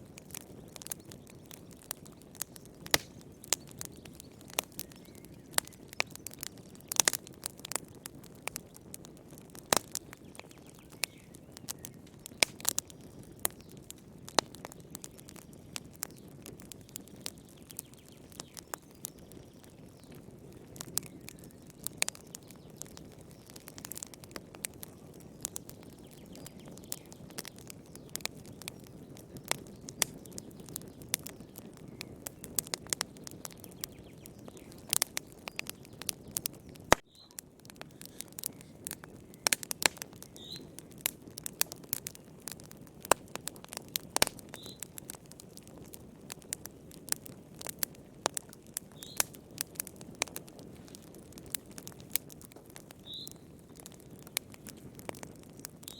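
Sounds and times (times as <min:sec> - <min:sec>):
low rush of flames: 0:00.0 - 0:55.9
wood fire crackling: 0:00.0 - 0:55.9.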